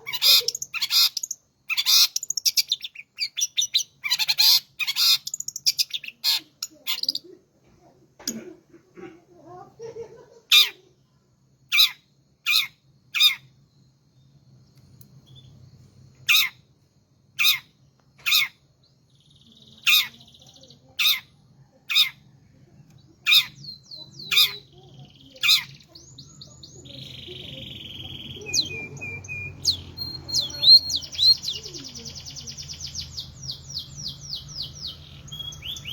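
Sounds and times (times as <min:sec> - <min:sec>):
songbird sharp calls: 0:00.0 - 0:07.3, 0:11.7 - 0:13.6, 0:16.2 - 0:16.6, 0:17.4 - 0:18.6, 0:19.2 - 0:22.2, 0:23.2 - 0:35.9
songbird twittering: 0:00.0 - 0:07.3, 0:11.7 - 0:16.6, 0:17.4 - 0:35.9.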